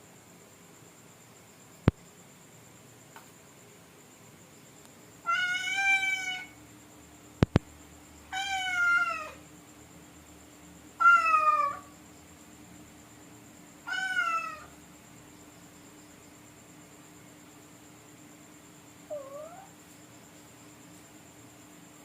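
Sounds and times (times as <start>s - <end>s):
cat meowing: 5.2s - 6.6s, 8.3s - 9.4s, 11.0s - 11.9s, 13.9s - 14.7s, 19.1s - 19.7s
sharp double click: 7.4s - 7.6s.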